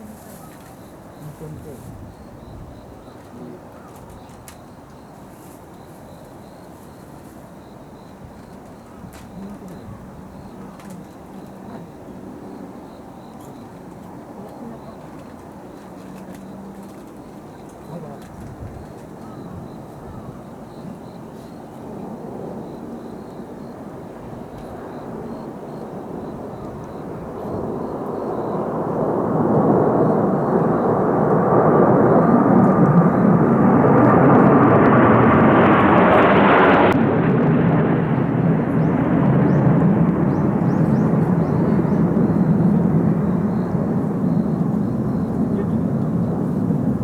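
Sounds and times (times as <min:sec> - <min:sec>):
jet engine whine: 0:00.0 - 0:47.0
jet aircraft flying past: 0:19.6 - 0:47.0.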